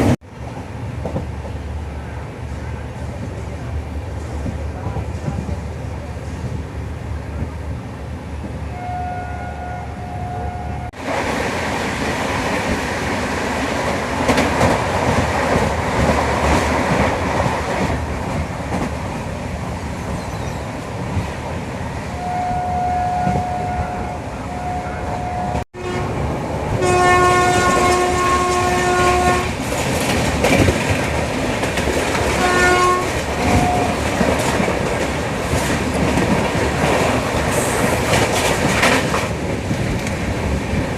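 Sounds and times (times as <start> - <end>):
train running on rails: 0.0 - 40.9
locomotive horn blasts: 8.7 - 10.9, 22.2 - 26.2, 26.8 - 29.5, 32.4 - 34.0.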